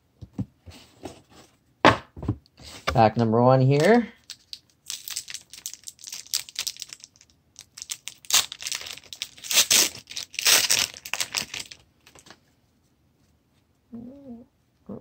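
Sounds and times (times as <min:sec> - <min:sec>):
wrapper crackling: 0:03.8 - 0:12.2
wrapper ripping: 0:03.8 - 0:12.2.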